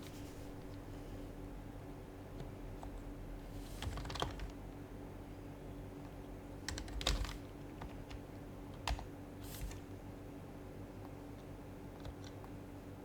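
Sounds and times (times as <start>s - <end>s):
soft keyboard keystrokes: 3.8s - 4.6s, 6.6s - 9.9s, 11.0s - 12.6s.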